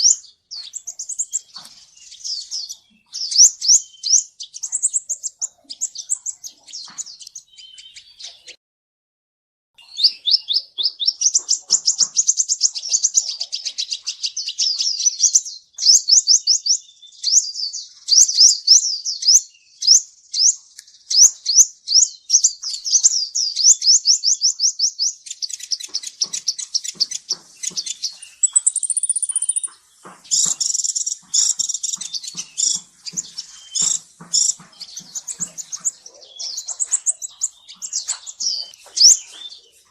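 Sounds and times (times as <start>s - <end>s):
bird chirping high notes: 27.9s - 39.7s.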